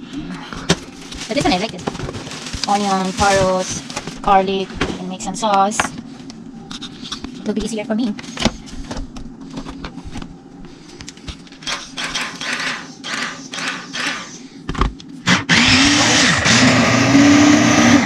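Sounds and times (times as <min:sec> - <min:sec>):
electric food chopper motor: 0:11.7 - 0:14.4, 0:15.3 - 0:18.0.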